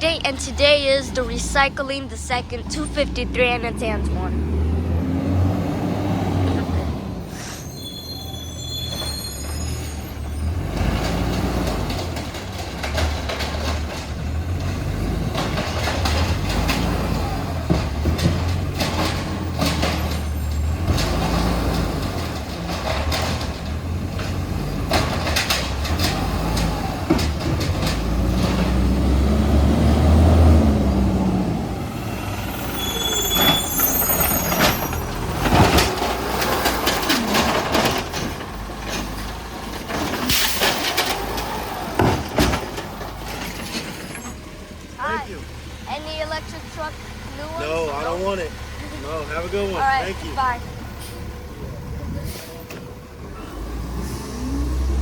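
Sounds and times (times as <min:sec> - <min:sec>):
truck engine revving: 0:00.0 - 0:07.7, 0:08.6 - 0:55.0
metal clanks and bangs: 0:08.9 - 0:29.2, 0:32.4 - 0:44.6.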